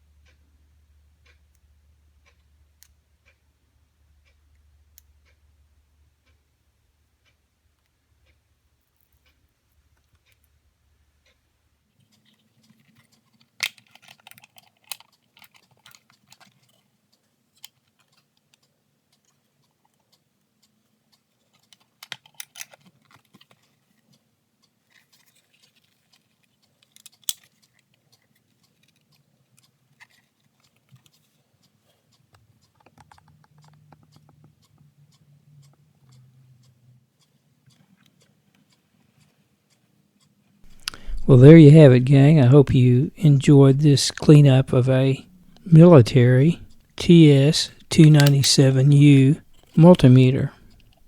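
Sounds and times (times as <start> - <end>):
low steady hum: 40.7 - 51.0.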